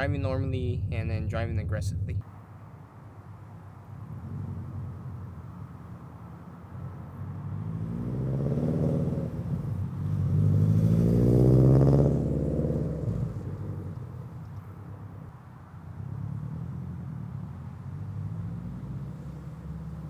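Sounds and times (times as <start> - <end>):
car engine driving past: 3.7 - 20.0.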